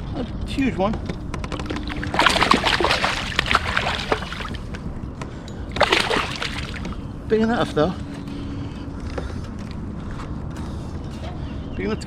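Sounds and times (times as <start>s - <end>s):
water splashing against kayak: 1.5s - 4.7s, 5.8s - 7.0s.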